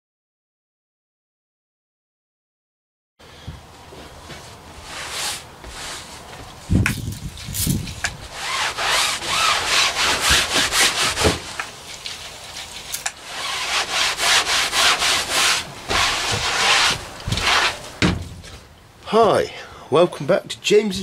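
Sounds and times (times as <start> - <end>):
scrubbing on a hard surface: 4.4 - 6.4, 7.2 - 18.0.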